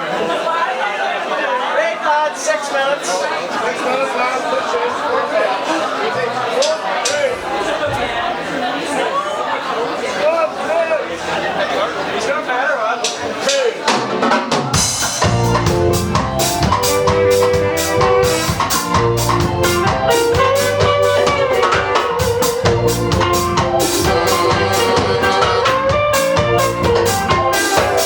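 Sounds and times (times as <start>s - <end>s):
drum kit beat: 13.1s - 28.0s
ska band playing: 13.4s - 28.0s.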